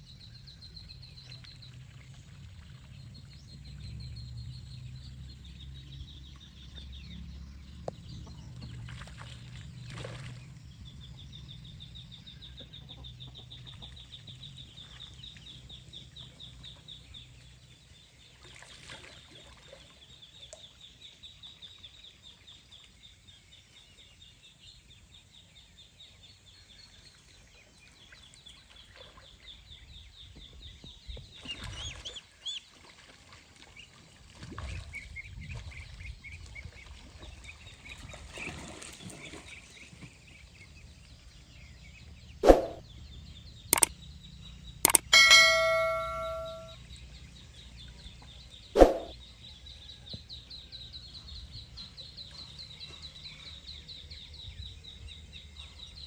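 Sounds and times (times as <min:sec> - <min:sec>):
high-pitched chirping trill: 0:44.9 - 0:46.8.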